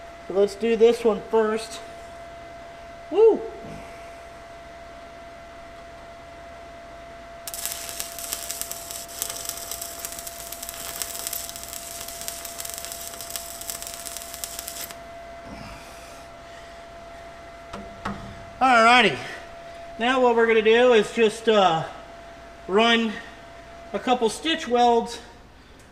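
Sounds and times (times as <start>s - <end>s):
welder arc crackling: 7.5s - 15.0s.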